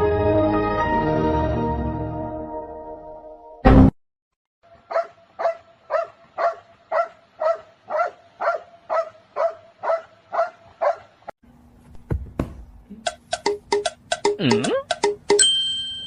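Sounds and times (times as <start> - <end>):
dog barking: 4.8 - 11.2
low thump: 11.9 - 12.8.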